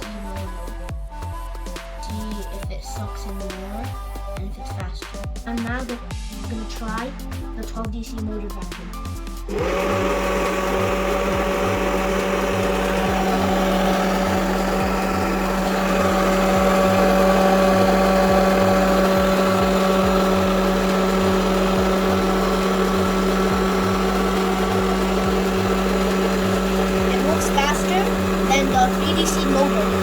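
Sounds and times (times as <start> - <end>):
small motor humming: 9.4 - 30.0.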